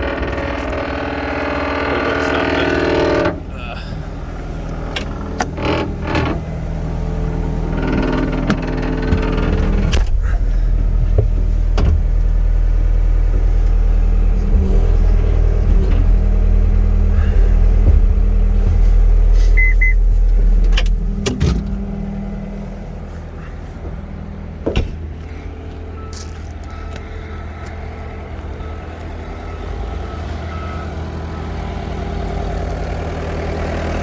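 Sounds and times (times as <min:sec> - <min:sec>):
diesel engine droning: 0:00.0 - 0:34.0
sharp knocks and clanks: 0:15.3 - 0:19.4, 0:24.6 - 0:25.5.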